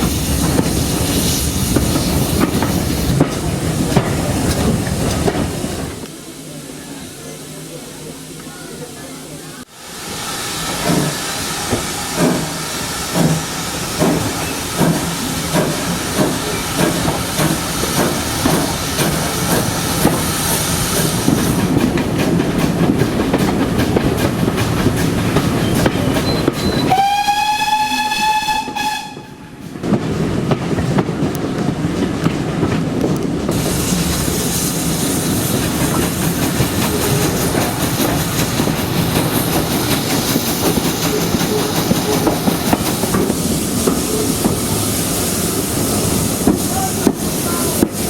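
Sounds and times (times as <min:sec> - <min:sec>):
steam locomotive exhaust beats: 0:00.0 - 0:08.6, 0:09.6 - 0:48.0
train whistle blast: 0:26.2 - 0:29.6.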